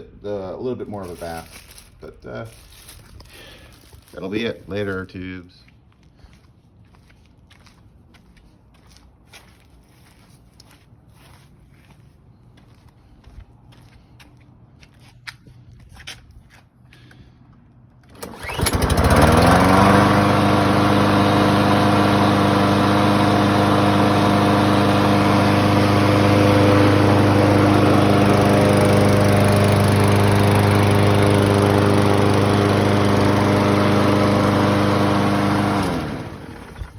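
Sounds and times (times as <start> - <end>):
lawn mower engine starting and running: 0.8 - 4.9, 17.8 - 36.9.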